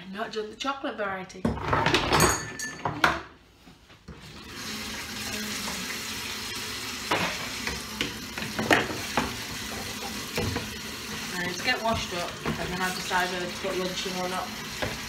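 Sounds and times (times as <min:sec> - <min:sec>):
water running into sink: 0:04.1 - 0:15.0
kitchen tap turned on: 0:04.2 - 0:15.0
dishes knocking: 0:07.1 - 0:10.7.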